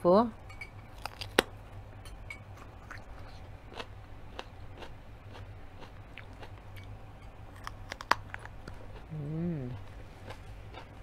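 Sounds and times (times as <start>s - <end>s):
steady low hum: 0.0s - 11.0s
chewing crunchy pepper: 2.6s - 6.9s, 7.5s - 11.0s.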